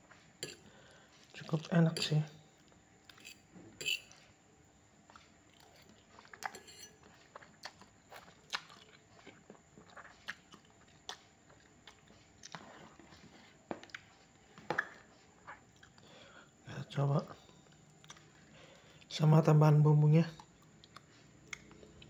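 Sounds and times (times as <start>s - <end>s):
person chewing noodles: 5.0s - 16.3s, 17.3s - 19.1s, 20.4s - 22.0s.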